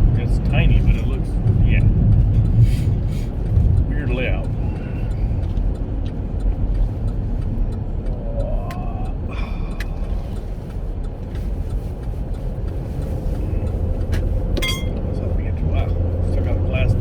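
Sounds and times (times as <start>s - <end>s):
car road and engine rumble: 0.0s - 17.0s
loose glass dinging: 14.6s - 15.0s.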